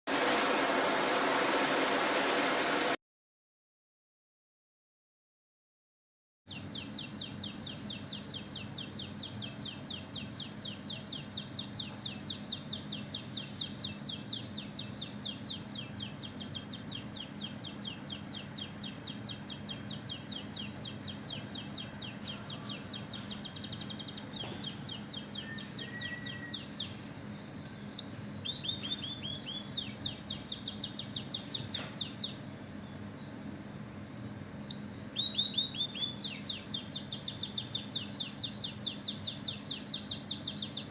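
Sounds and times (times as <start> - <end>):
bird singing rapid high notes: 6.5 - 32.5, 34.7 - 40.9
steady low hum: 6.5 - 40.9.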